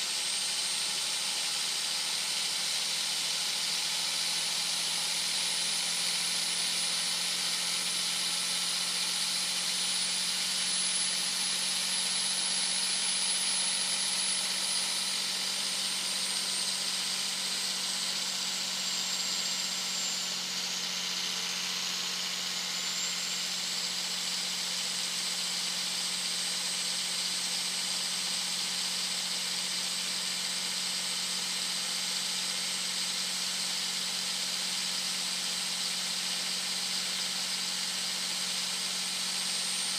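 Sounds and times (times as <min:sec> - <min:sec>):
turbocharger whistle: 0:02.4 - 0:31.8.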